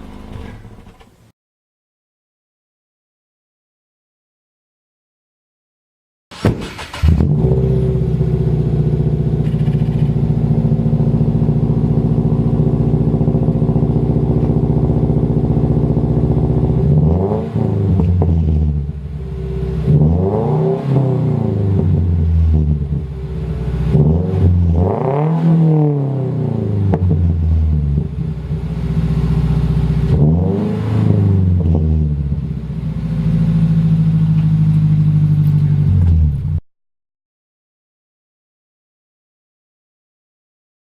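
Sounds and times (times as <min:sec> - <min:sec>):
car engine idling and revving: 0:00.0 - 0:01.1, 0:06.4 - 0:36.6.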